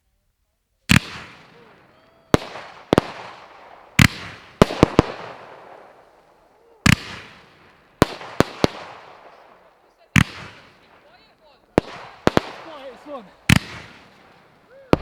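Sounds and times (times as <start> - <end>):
firework bangs: 0.9 - 15.0.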